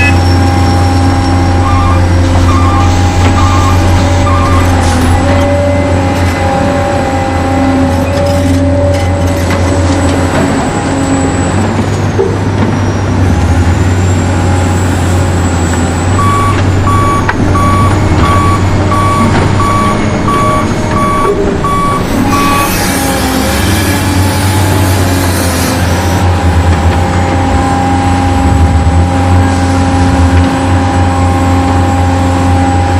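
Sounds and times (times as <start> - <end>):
reversing beeper: 0.0 - 6.0, 16.2 - 22.9.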